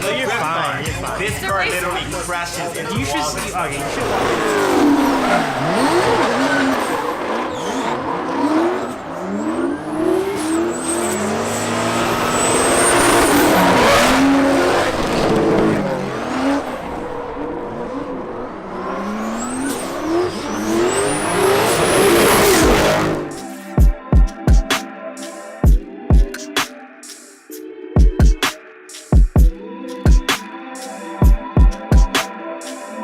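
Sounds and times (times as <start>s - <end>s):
car engine revving: 2.0s - 23.5s
tyre squeal: 4.5s - 13.6s.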